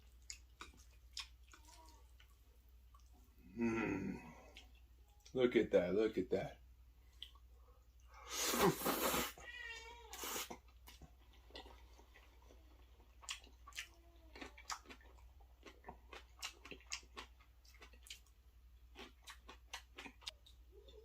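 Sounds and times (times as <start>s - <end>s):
close-miked chewing: 0.0s - 3.4s, 4.2s - 5.4s, 7.1s - 8.2s, 10.2s - 21.0s.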